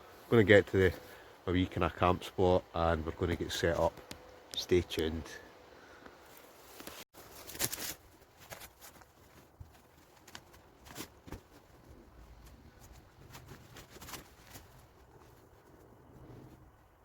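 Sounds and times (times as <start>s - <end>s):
rustles: 5.9s - 17.0s.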